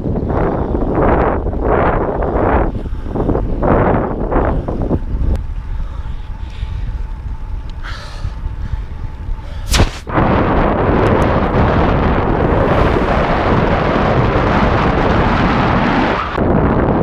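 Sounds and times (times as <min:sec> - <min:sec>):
wind buffeting microphone: 0:00.0 - 0:17.0
short sharp crack: 0:09.7 - 0:10.1.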